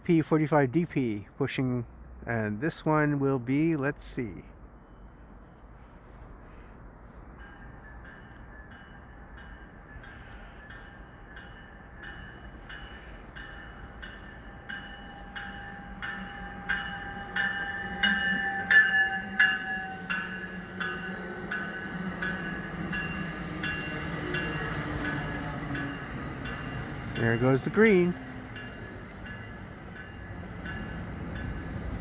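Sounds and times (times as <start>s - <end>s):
train rumbling past: 0.0s - 32.0s
bell ringing: 7.4s - 31.8s.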